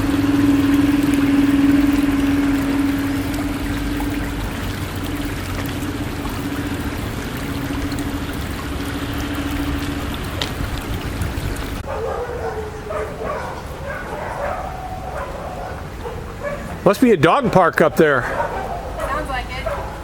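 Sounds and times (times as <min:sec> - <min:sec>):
steady hum: 0:00.0 - 0:11.9
rushing water: 0:00.0 - 0:20.0
dogs yipping and whining: 0:11.8 - 0:16.8, 0:18.2 - 0:20.0.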